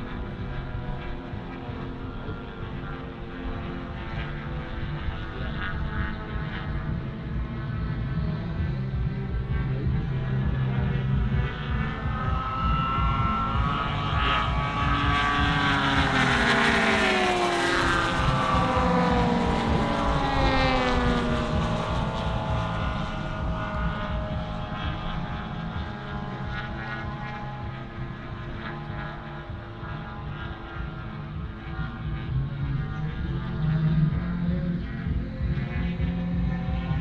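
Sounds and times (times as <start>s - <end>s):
model airplane engine flying past: 0.0s - 37.0s.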